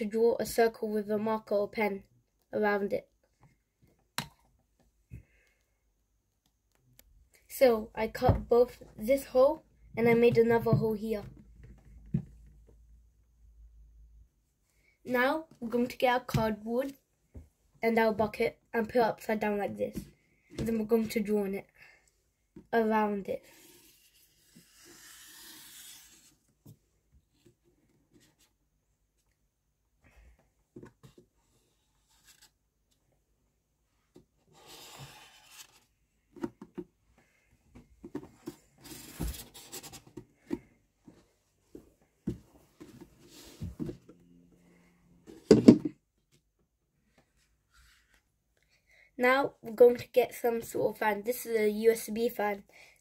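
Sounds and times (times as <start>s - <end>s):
marker pen scratching on cardboard: 23.4s - 26.4s, 34.5s - 35.8s
bucket and cardboard knocks: 45.4s - 46.0s.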